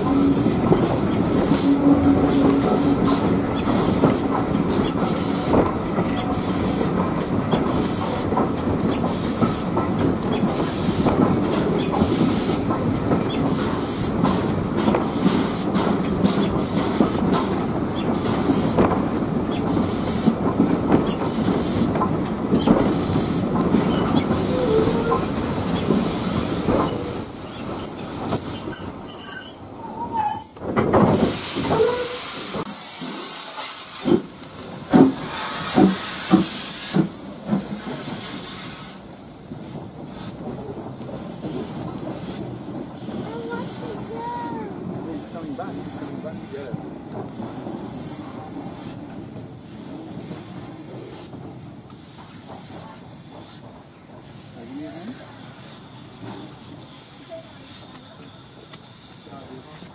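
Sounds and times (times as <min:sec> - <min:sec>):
steam hissing: 0:00.0 - 0:30.3, 0:31.0 - 0:59.9
wheels clicking over rail joints: 0:00.0 - 0:32.7
steam train rumble: 0:00.0 - 0:59.9.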